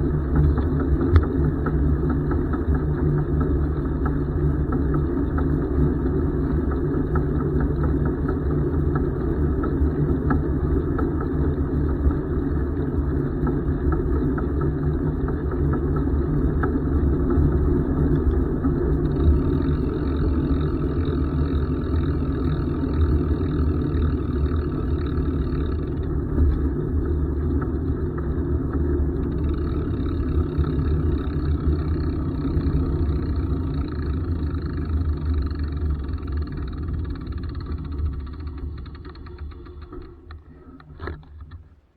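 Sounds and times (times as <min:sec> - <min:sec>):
bicycle riding rumble: 0:00.0 - 0:41.9
faint light ticks: 0:00.3 - 0:12.2, 0:12.8 - 0:23.2.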